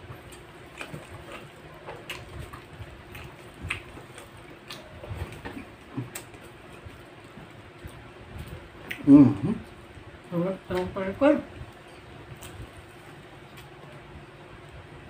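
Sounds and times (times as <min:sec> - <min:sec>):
soft chewing: 0:00.0 - 0:14.9
faint steady hum: 0:00.0 - 0:15.0
lip smacks: 0:00.3 - 0:06.9, 0:07.8 - 0:09.8.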